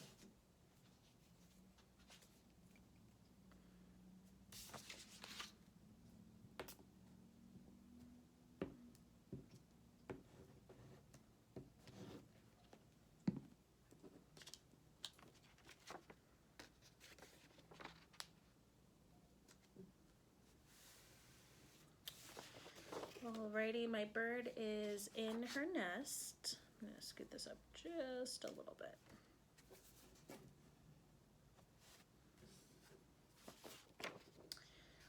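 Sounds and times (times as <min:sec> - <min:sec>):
paper rustling and scraping: 0:04.6 - 0:05.6, 0:22.1 - 0:23.4, 0:31.8 - 0:34.4.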